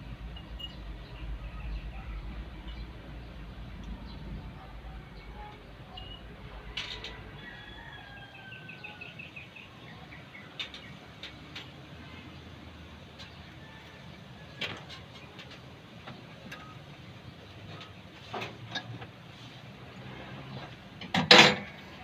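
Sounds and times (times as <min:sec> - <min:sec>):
bird chirping: 0:08.0 - 0:11.4.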